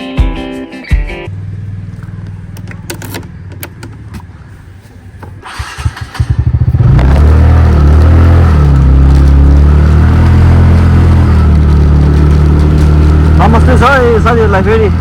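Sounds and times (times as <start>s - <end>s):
scooter engine starting and idling: 1.3s - 4.4s, 5.2s - 8.0s.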